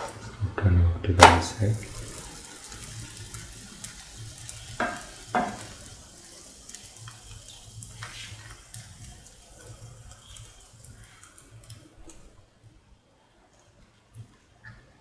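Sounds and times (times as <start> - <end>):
batter sizzling on a hot pan: 0.0 - 0.4, 1.2 - 12.8.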